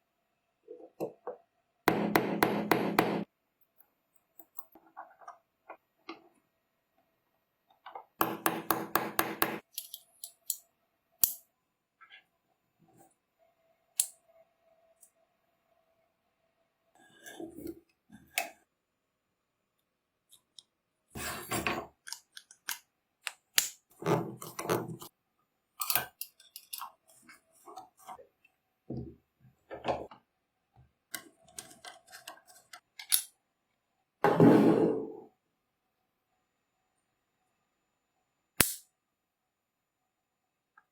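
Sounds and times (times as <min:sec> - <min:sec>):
metal tool parts clicking and knocking: 0:09.4 - 0:11.4, 0:25.8 - 0:27.0.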